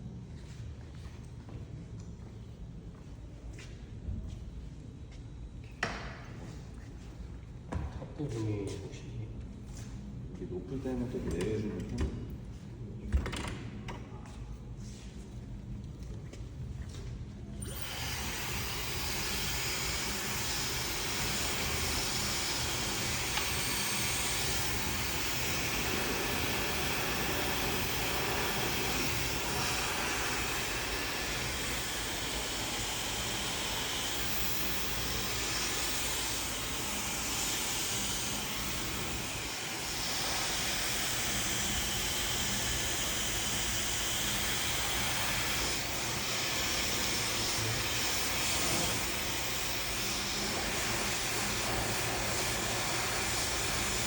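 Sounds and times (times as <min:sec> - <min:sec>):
hair dryer blowing: 0:17.6 - 0:54.0.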